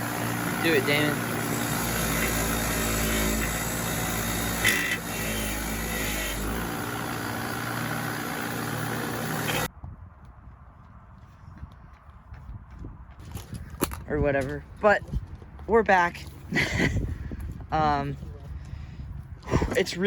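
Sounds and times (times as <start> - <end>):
engine running: 0.0 - 9.7.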